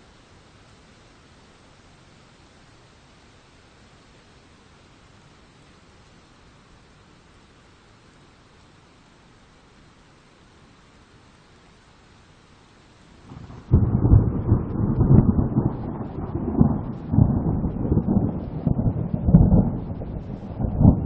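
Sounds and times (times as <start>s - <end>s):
rain hiss: 0.0s - 21.0s
rolling thunder: 13.3s - 21.0s.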